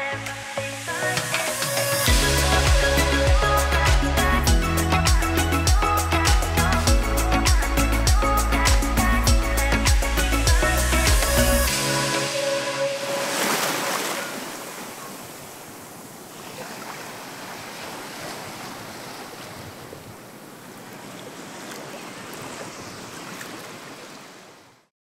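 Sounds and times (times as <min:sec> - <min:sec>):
surf washing onto beach: 0:11.7 - 0:24.5.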